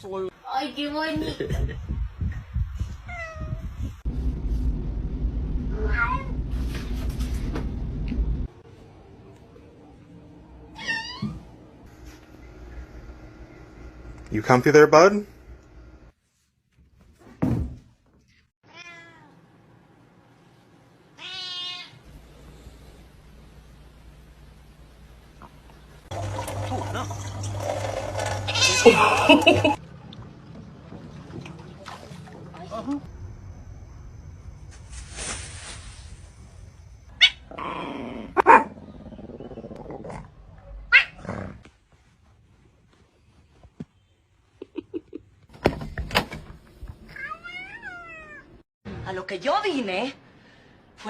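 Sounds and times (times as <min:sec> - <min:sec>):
cat meowing: 0:18.6 - 0:19.4, 0:21.2 - 0:22.0, 0:47.2 - 0:48.6
dog growling: 0:37.4 - 0:41.7
dog barking: 0:38.4 - 0:38.7.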